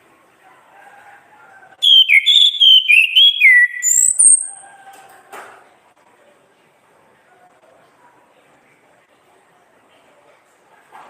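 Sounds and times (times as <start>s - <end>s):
thrush singing whistled notes: 1.8s - 4.6s.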